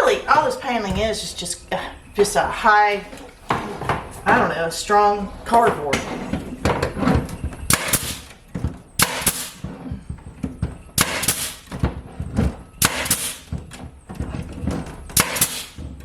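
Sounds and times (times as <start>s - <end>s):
nail gun firing: 7.7s - 8.4s, 9.0s - 9.6s, 11.0s - 11.7s, 12.8s - 13.5s, 15.1s - 16.0s.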